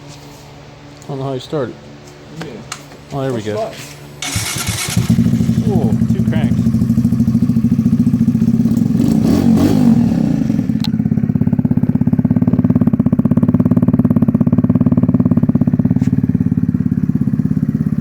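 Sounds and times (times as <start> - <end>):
motorcycle engine idling and revving: 4.2 - 18.0.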